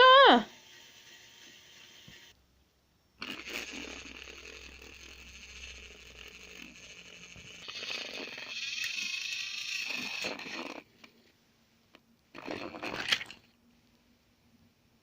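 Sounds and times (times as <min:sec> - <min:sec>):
toy train motor whirring: 0:00.0 - 0:02.4, 0:03.2 - 0:10.9.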